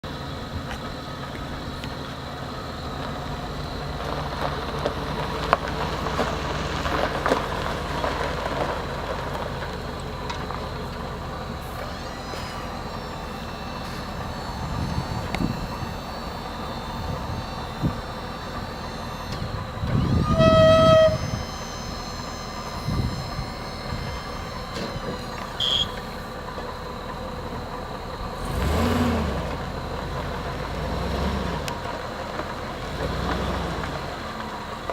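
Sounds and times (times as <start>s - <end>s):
truck engine running: 0.0s - 34.9s
truck horn honk: 11.4s - 26.5s.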